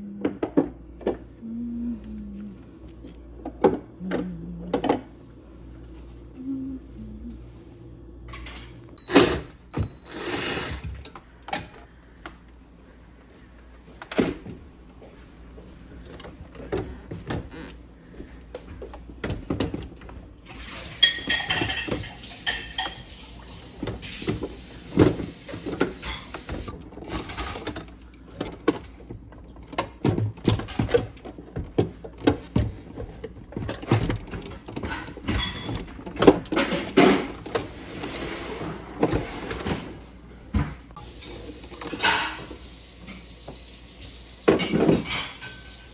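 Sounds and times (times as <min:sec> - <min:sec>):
tools and parts clattering: 0:19.2 - 0:40.0, 0:44.5 - 0:45.9.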